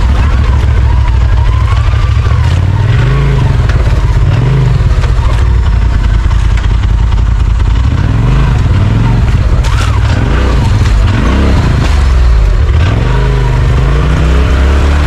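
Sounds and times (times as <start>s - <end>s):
utv engine revving under load: 7.8s - 15.0s.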